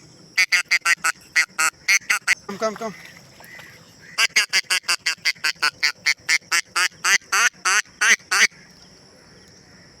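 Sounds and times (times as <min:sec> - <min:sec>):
duck call quacks: 0:00.4 - 0:02.4, 0:04.1 - 0:08.5.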